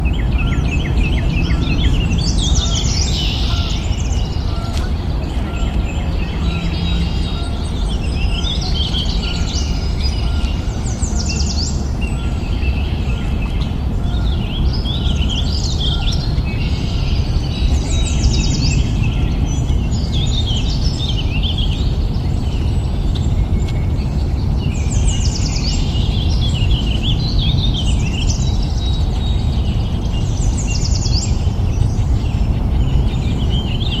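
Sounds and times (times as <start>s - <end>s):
low background rumble: 0.0s - 34.0s
small birds chirping: 0.0s - 34.0s.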